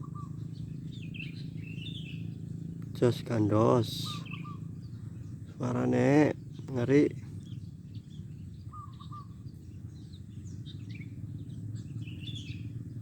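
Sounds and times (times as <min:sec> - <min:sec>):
steady low hum: 0:00.0 - 0:08.8
small birds chirping: 0:00.0 - 0:13.0.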